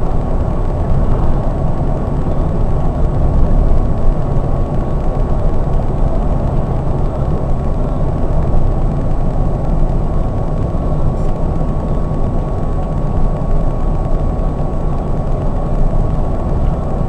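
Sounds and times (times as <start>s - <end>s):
diesel engine drone: 0.0s - 17.0s
faint steady whine: 0.0s - 17.0s
tyre and road noise: 0.0s - 17.0s.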